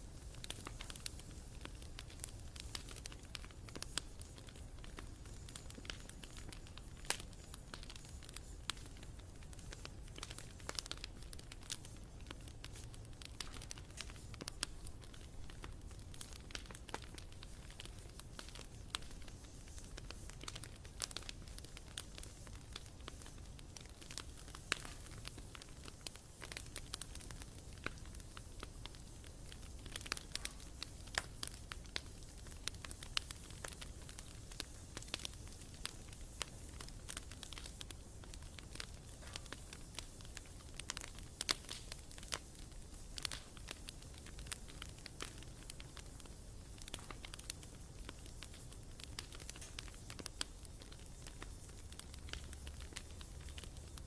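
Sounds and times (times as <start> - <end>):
fire crackles and pops: 0.0 - 54.0
hiss of flames: 0.0 - 54.0.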